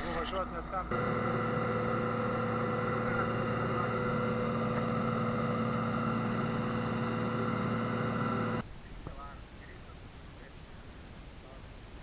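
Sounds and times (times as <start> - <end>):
tractor engine running: 0.9 - 8.6.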